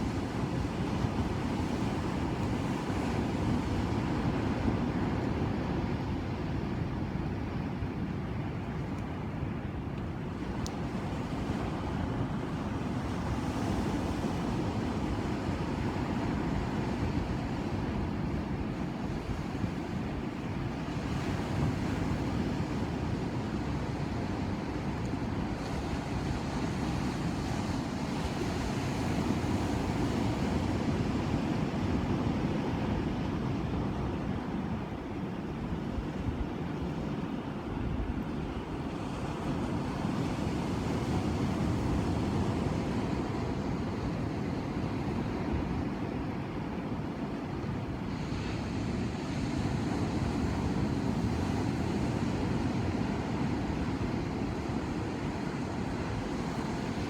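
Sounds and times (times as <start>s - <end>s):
waves breaking and washing in: 0.0s - 57.0s.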